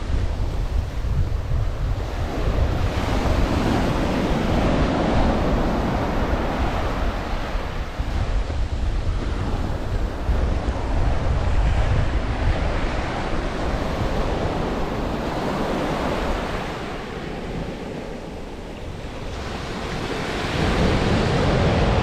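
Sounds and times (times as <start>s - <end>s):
ocean surf washing onto beach: 0.0s - 22.0s
wind buffeting microphone: 0.0s - 22.0s.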